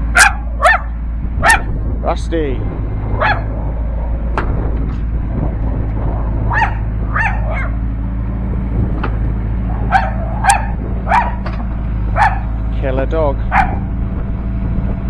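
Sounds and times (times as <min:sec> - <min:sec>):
excavator diesel engine humming: 0:00.0 - 0:15.0
dog barking: 0:00.2 - 0:01.8, 0:03.2 - 0:03.5, 0:06.5 - 0:07.8, 0:09.7 - 0:11.5, 0:12.1 - 0:12.6, 0:13.5 - 0:13.9.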